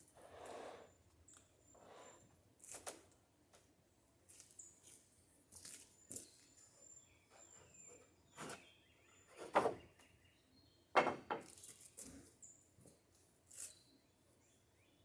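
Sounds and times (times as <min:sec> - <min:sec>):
wooden boards knocking and scraping: 0:09.4 - 0:09.9, 0:11.0 - 0:11.5.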